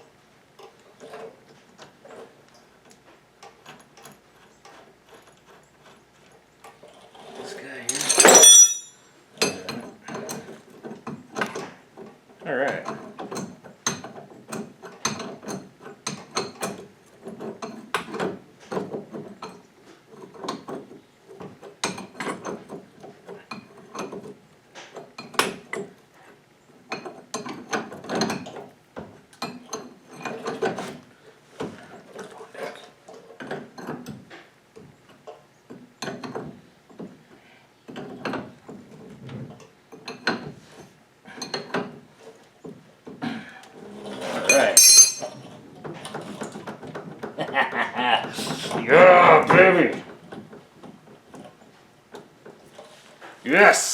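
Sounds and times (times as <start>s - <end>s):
metal clanking: 7.9s - 9.0s, 44.5s - 45.4s.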